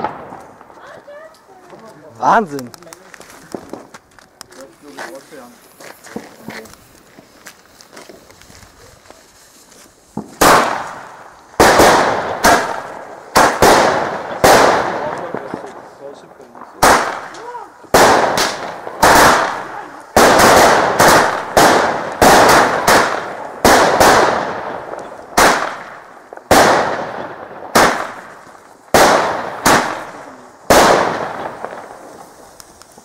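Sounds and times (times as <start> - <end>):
firecracker bangs with echo: 0.0 - 1.3, 10.1 - 32.7.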